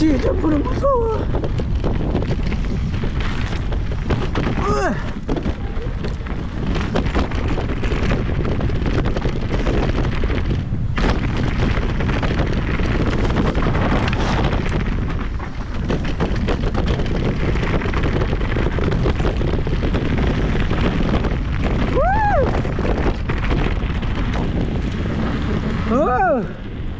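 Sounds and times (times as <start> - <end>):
bike rattling and knocking: 0.0 - 26.9
tyres on dirt: 0.0 - 26.9
wind buffeting microphone: 0.0 - 26.9.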